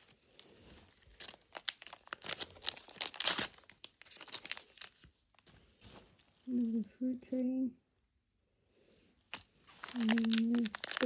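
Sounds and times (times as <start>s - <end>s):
plastic wrapper crinkling and tearing: 1.2s - 5.0s, 9.4s - 11.0s.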